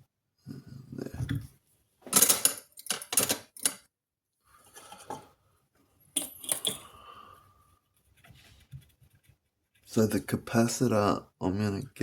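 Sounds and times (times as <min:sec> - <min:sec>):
tools clattering on workbench: 0:02.0 - 0:03.9, 0:06.1 - 0:06.9.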